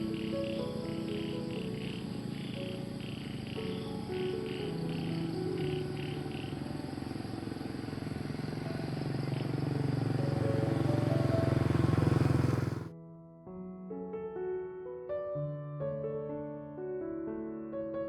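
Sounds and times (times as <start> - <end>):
motorbike engine revving: 0.0 - 12.9.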